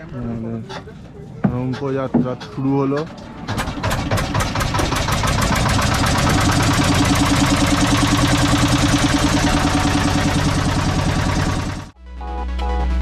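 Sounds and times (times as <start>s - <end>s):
motorboat engine throbbing: 3.5s - 11.9s.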